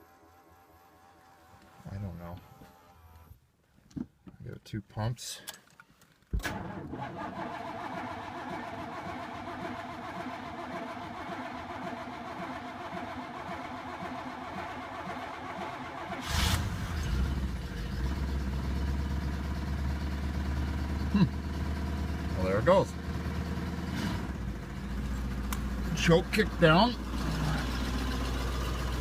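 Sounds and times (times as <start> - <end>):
car engine cranking: 5.5 - 29.0
car engine running: 6.4 - 29.0.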